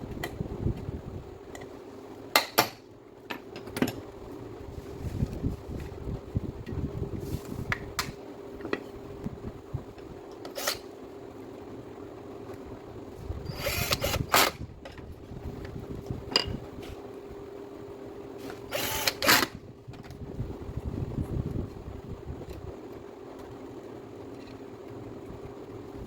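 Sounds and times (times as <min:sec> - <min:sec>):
steady hum: 0:00.0 - 0:26.0
power tool running: 0:13.4 - 0:14.6, 0:18.4 - 0:19.6.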